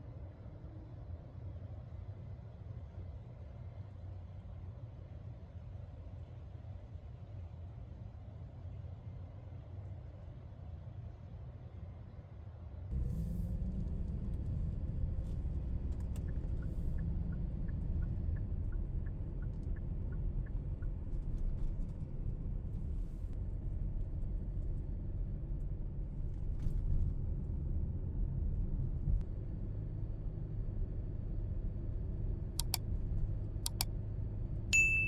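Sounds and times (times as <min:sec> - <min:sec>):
steady low rumble: 0:12.9 - 0:35.0
faint clicks: 0:32.6 - 0:32.8, 0:33.6 - 0:33.9.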